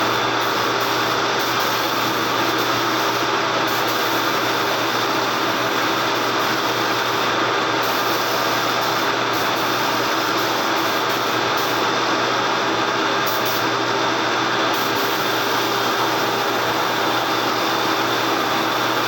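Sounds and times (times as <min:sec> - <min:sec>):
machine hiss and hum: 0:00.0 - 0:19.0.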